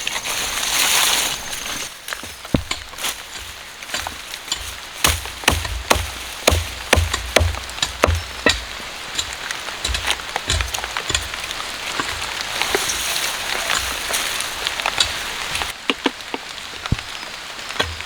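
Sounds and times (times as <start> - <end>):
sharp taps and clicks: 2.5 - 12.2.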